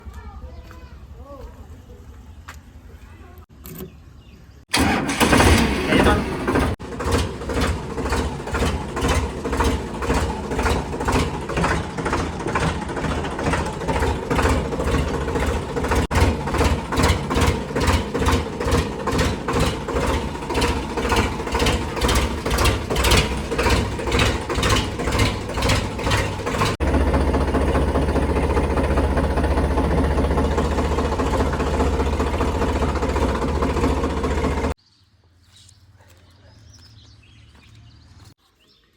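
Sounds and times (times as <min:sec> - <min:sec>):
tractor engine pulsing: 0:04.7 - 0:34.8.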